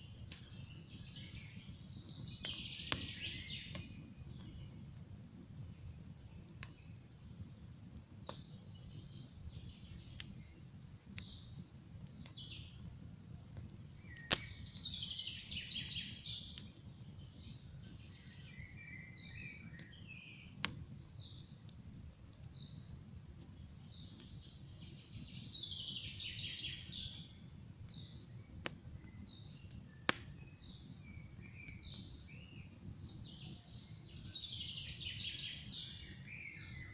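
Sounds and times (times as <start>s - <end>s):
campfire crackling: 0.0s - 36.9s
songbirds chirping: 0.0s - 36.9s
bird trilled song: 0.4s - 4.6s, 13.9s - 16.6s, 17.2s - 20.4s, 29.0s - 36.9s.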